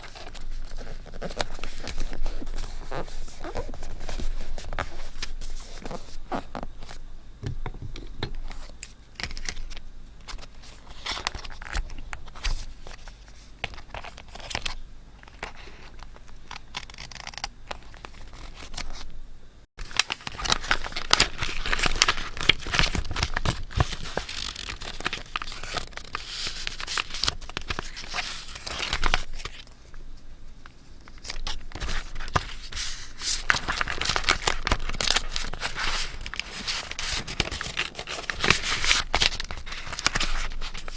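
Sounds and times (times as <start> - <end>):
paper tearing and crinkling: 19.8 - 29.6, 31.2 - 40.9.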